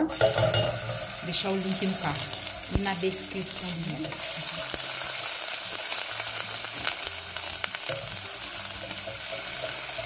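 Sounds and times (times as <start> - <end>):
garlic and onion sizzling in oil: 0.0 - 10.0
spatula stirring in a pot: 8.8 - 10.0.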